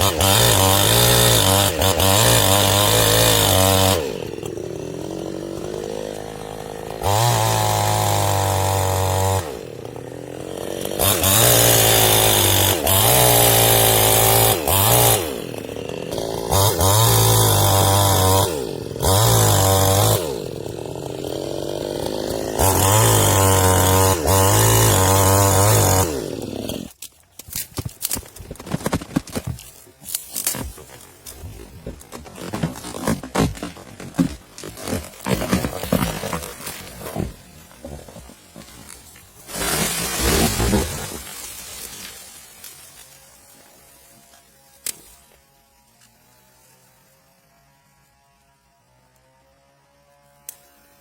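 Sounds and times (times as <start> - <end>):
chainsaw revving: 0.0 - 27.0, 28.6 - 42.1.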